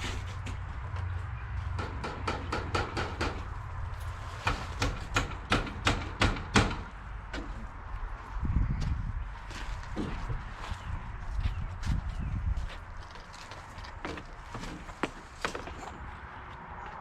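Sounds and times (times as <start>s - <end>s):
hammering on a roof: 1.8s - 3.6s, 4.4s - 7.6s
steady low rumble: 6.9s - 13.1s.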